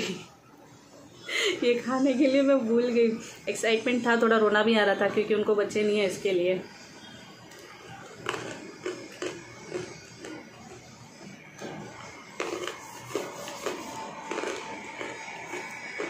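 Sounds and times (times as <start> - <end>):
faint background music: 0.0 - 16.0
person chewing food: 7.0 - 16.0.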